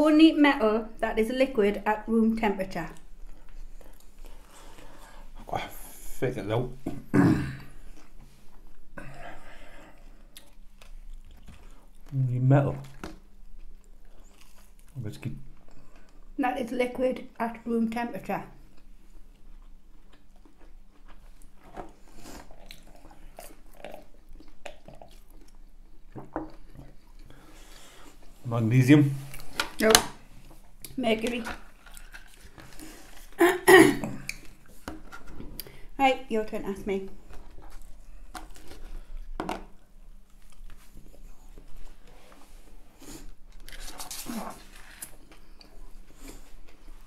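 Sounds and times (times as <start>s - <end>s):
chewing: 2.9s - 5.3s, 9.8s - 12.2s, 12.8s - 16.3s, 18.7s - 28.3s, 30.4s - 33.4s, 37.2s - 39.3s.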